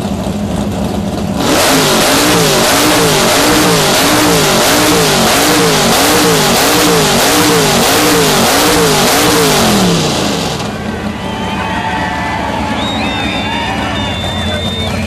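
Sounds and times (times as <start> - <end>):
car engine revving loudly: 1.1 - 10.9.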